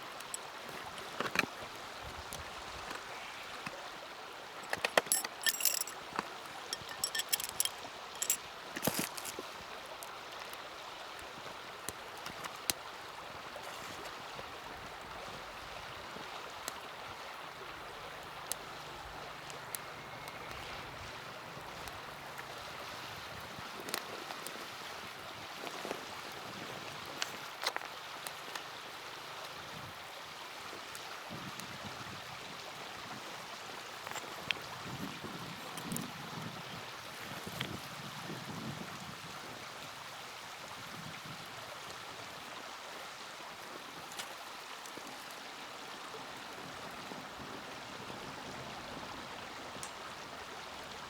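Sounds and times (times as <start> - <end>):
steady rushing water: 0.0 - 51.0
light sharp clicks and clinks: 0.1 - 1.5, 4.6 - 10.6.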